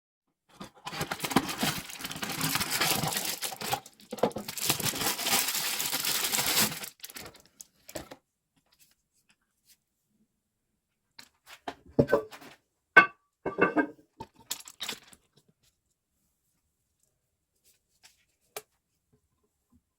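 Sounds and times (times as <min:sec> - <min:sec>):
plastic packaging crinkling: 0:00.6 - 0:08.2, 0:14.4 - 0:15.3.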